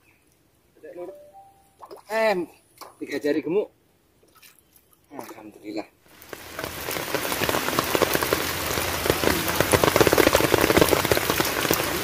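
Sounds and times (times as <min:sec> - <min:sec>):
rain falling on water: 0:06.0 - 0:12.0.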